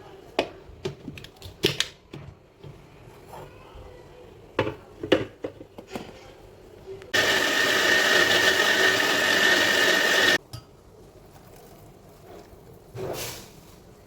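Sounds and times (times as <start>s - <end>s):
mixer grinder whining: 7.2s - 10.4s.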